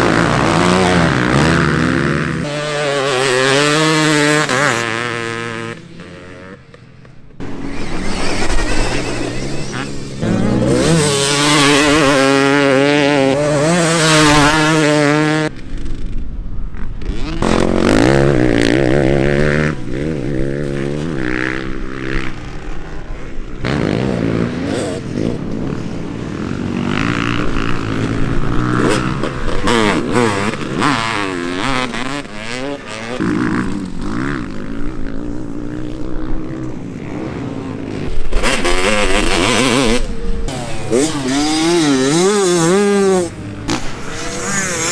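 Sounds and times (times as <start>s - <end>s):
motocross bike engines revving: 0.0s - 44.9s.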